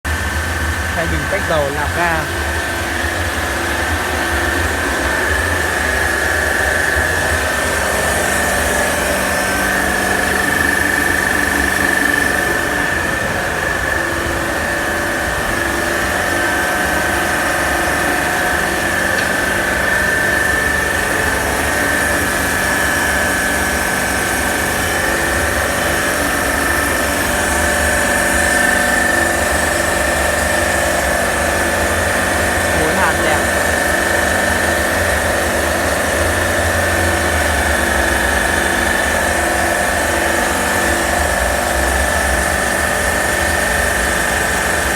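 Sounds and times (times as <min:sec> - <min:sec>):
high even whine: 0:00.8 - 0:03.2.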